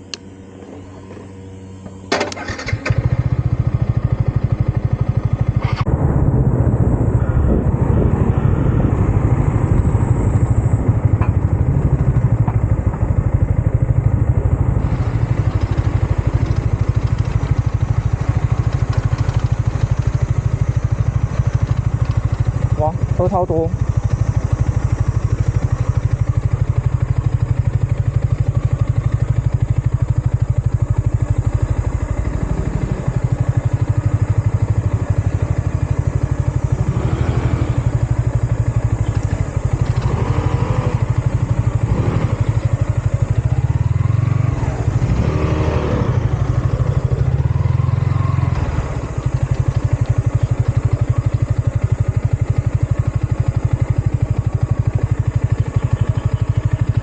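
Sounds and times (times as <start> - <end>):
motorcycle engine running: 0.0 - 57.0
wind on microphone: 5.8 - 13.6.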